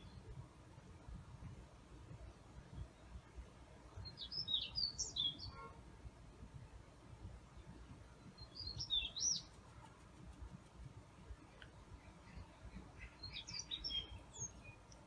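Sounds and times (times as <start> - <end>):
songbird whistling: 4.1 - 5.6, 8.4 - 9.5, 13.2 - 14.8.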